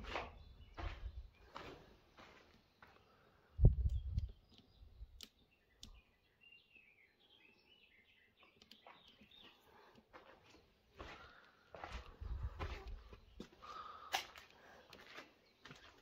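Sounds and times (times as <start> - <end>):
sharp clicks: 3.7 - 6.0.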